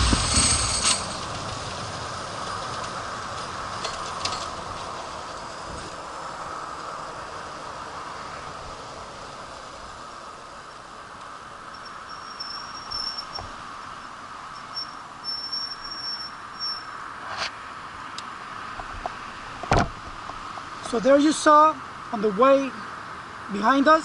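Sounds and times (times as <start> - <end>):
background hiss: 0.0 - 24.0
high thin chirping: 11.8 - 13.4, 14.6 - 17.0.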